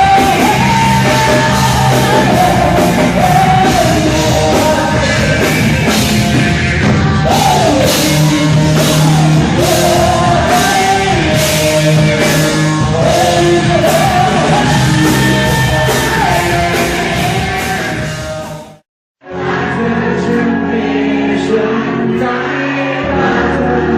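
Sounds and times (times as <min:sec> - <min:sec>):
steady drum beat: 0:00.0 - 0:18.8
loud rock band music: 0:00.0 - 0:23.9
person singing: 0:00.0 - 0:23.9.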